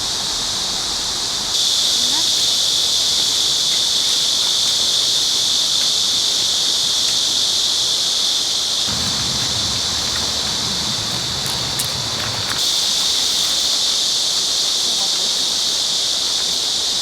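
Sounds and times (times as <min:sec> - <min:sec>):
cicadas buzzing: 0:00.3 - 0:17.0
low rumble: 0:08.9 - 0:12.6.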